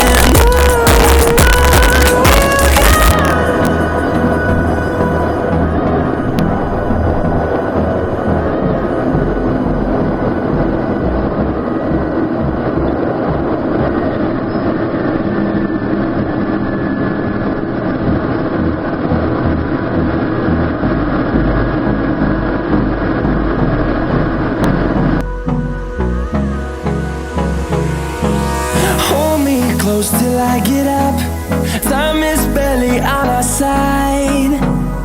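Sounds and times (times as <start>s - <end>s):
aircraft engine rumble: 0.0s - 35.0s
engine hiss: 17.5s - 35.0s.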